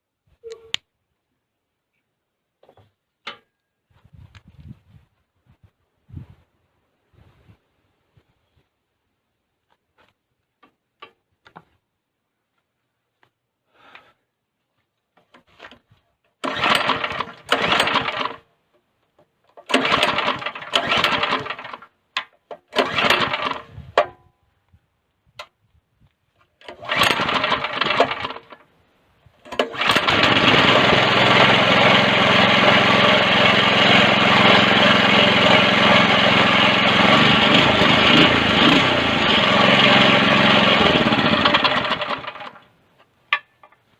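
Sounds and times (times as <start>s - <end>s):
small petrol engine starting: 16.4s - 18.5s, 19.5s - 23.9s, 26.6s - 28.6s, 29.4s - 42.7s.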